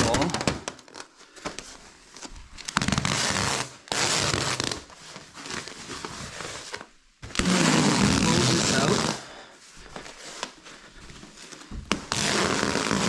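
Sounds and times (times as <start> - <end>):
plastic film crackling peel: 0.1 - 1.2.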